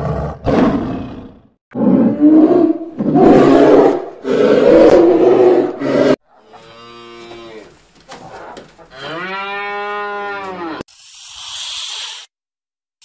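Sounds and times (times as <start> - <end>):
bear roaring: 0.0 - 6.2
cow mooing: 8.9 - 10.8.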